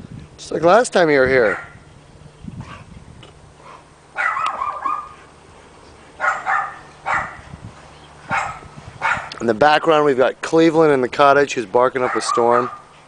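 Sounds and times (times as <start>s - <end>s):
dog barking: 1.5s - 1.8s, 4.2s - 5.2s, 6.2s - 7.4s, 8.3s - 9.3s, 12.0s - 12.9s.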